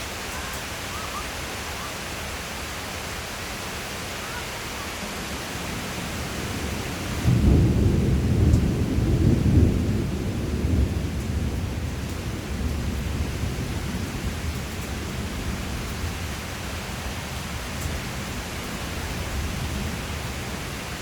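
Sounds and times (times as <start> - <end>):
rain hissing: 0.0 - 21.0
low thunder rumble: 5.5 - 16.4.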